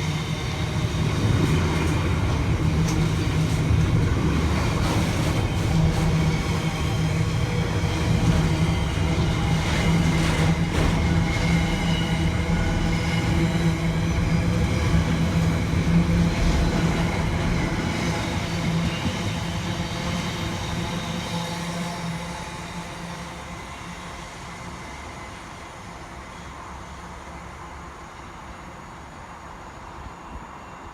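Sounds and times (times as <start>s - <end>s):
train running past: 0.0s - 30.9s.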